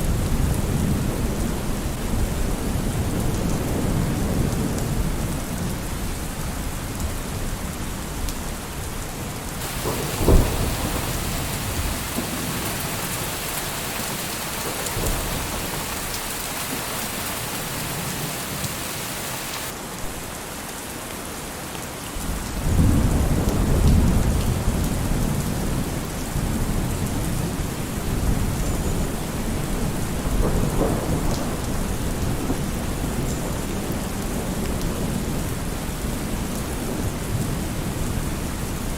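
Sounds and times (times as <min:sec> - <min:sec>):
low rumble of thunder: 0:00.0 - 0:06.8, 0:09.6 - 0:20.3, 0:22.3 - 0:38.5
steady rain: 0:00.0 - 0:38.9
sharp thunderclap: 0:09.6 - 0:19.7.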